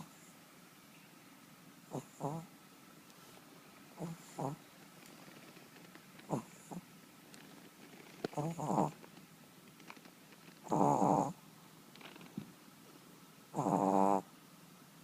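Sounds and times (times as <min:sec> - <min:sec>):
dog snoring: 0:01.9 - 0:02.5, 0:04.0 - 0:04.6, 0:06.3 - 0:06.9, 0:08.3 - 0:09.0, 0:10.6 - 0:11.4, 0:13.5 - 0:14.3.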